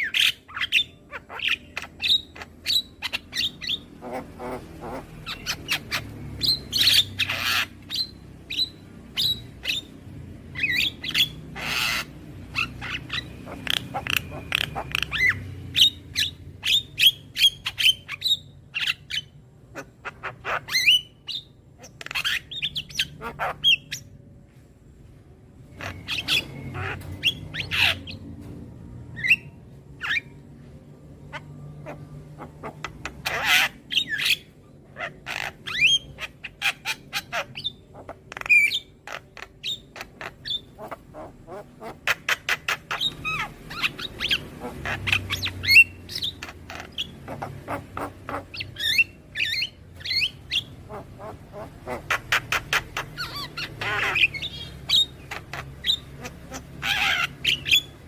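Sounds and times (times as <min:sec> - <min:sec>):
bird squawking and chirping: 0:00.0 - 0:24.3, 0:25.6 - 0:58.0.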